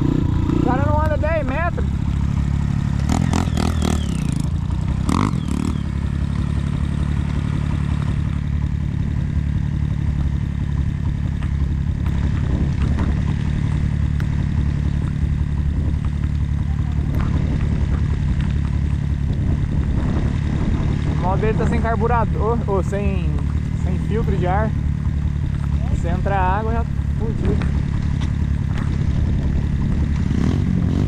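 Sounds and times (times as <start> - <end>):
motorcycle engine idling: 0.0 - 31.0.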